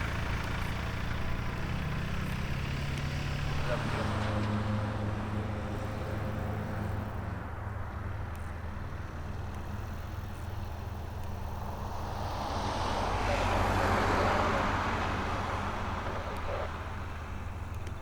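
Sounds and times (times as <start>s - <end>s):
low engine hum: 0.0s - 18.0s
propeller aircraft passing: 8.7s - 18.0s.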